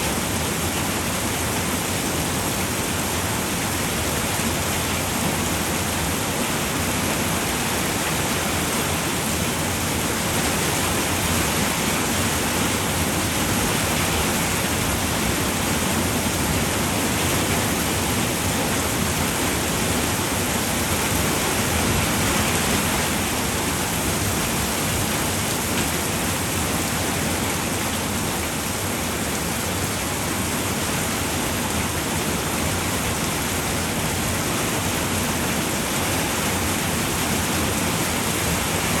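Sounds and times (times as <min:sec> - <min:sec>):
rain on a roof: 0:00.0 - 0:39.0.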